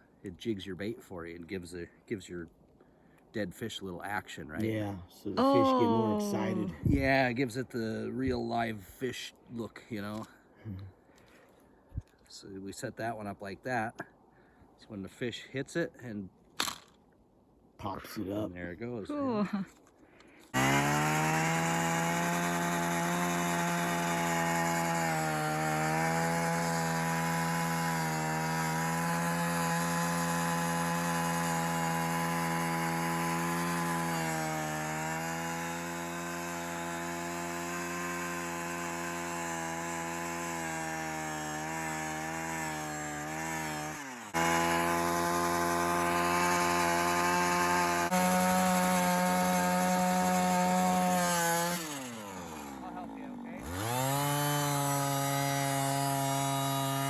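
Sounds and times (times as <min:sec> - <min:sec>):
power ice auger drilling: 0:05.4 - 0:07.2, 0:16.6 - 0:17.0, 0:20.2 - 0:57.0.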